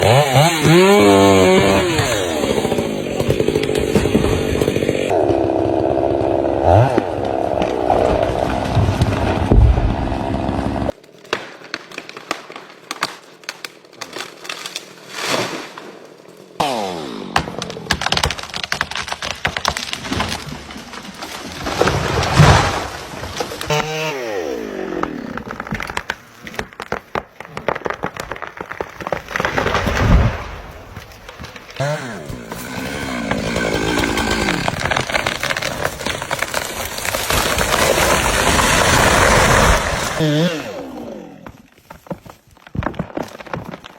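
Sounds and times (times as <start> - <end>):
chainsaw engine revving: 0.0 - 7.5, 16.6 - 17.4, 23.6 - 25.6, 31.8 - 35.3, 37.7 - 41.5
wood splintering and cracking: 0.0 - 43.9.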